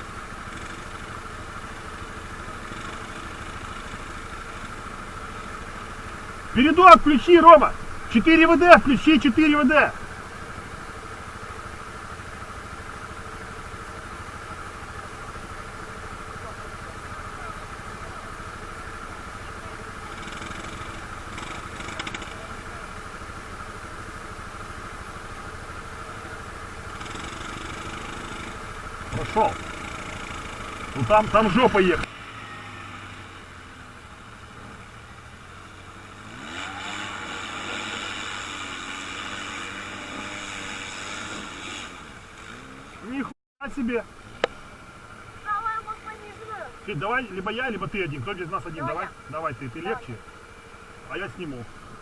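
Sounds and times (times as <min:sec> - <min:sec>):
faint rapid ticking: 0:00.0 - 0:32.2
atv engine idling: 0:00.0 - 0:52.0.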